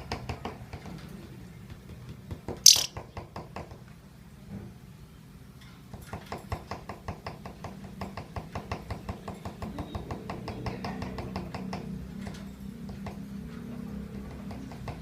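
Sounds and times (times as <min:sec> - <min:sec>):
bird chirping rapidly: 0:02.7 - 0:03.0.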